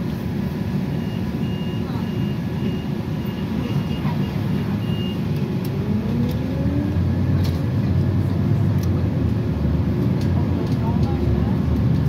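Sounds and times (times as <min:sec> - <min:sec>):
high warning beeps: 0:00.9 - 0:05.3.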